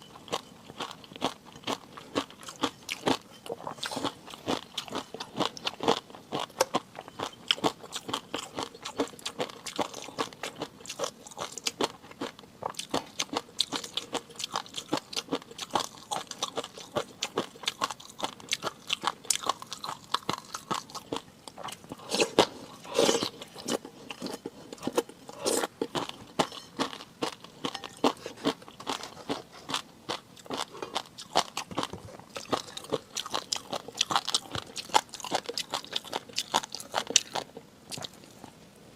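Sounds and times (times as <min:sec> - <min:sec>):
crunching and chewing: 0:00.0 - 0:38.6.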